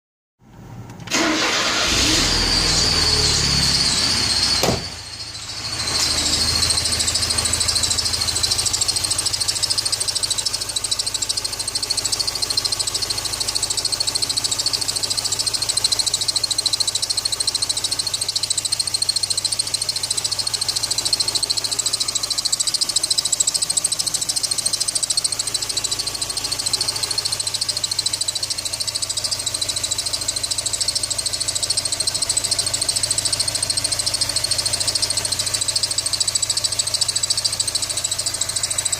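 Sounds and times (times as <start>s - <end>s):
petrol engine starting and running: 0.5s - 38.9s
high-pitched whistle: 2.0s - 38.9s.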